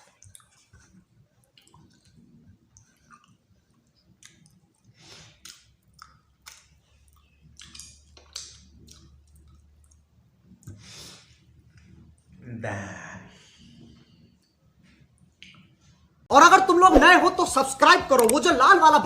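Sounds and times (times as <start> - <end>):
wet mouth clicks and smacks: 0.0 - 10.8, 15.2 - 15.7
person chewing food: 0.0 - 12.3.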